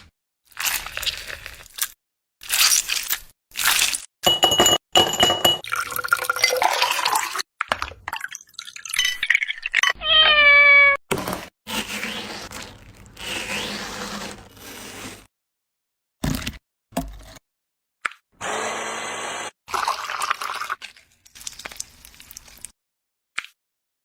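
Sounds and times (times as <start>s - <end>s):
cooking sounds: 0.0s - 10.5s, 11.2s - 15.3s, 18.4s - 22.7s
liquid pouring: 5.6s - 9.8s, 19.7s - 22.7s
cat meowing: 10.0s - 11.0s.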